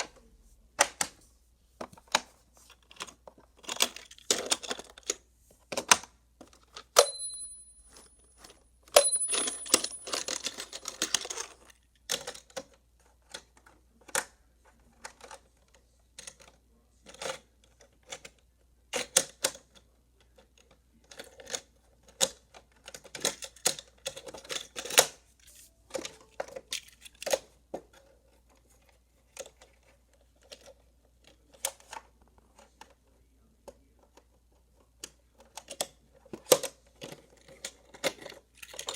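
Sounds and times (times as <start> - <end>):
high pings: 7.0 - 8.0
toy cars clicking on plastic track: 20.4 - 25.2, 35.1 - 38.9.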